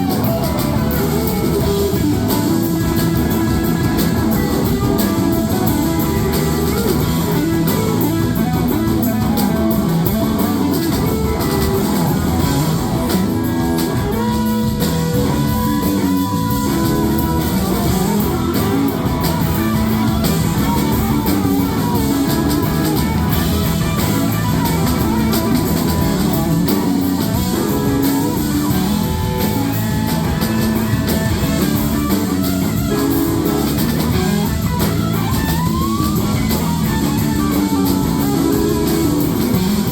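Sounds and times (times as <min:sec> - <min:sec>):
drum kit: 0:00.0 - 0:39.9
electric guitar: 0:00.0 - 0:39.9
gliding guitar notes: 0:00.0 - 0:39.9.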